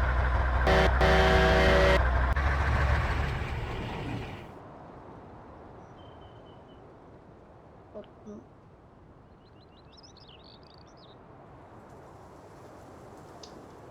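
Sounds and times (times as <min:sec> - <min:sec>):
truck engine running: 0:00.0 - 0:04.6
truck horn blasts: 0:00.6 - 0:02.7.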